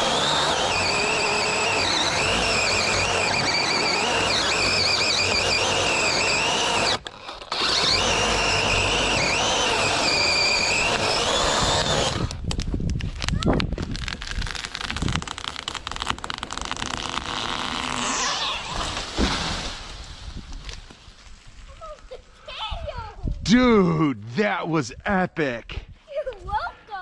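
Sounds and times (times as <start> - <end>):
chainsaw cutting wood: 0.0 - 21.0.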